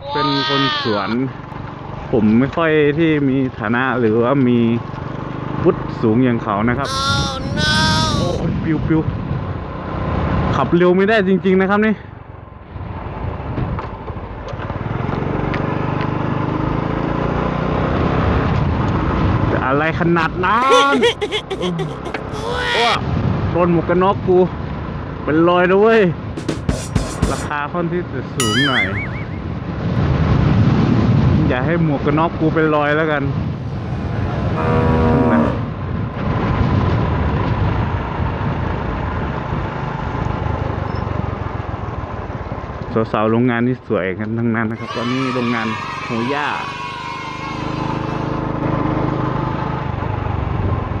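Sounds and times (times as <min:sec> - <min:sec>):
gusting wind on microphone: 0:29.4 - 0:32.5, 0:33.2 - 0:38.8.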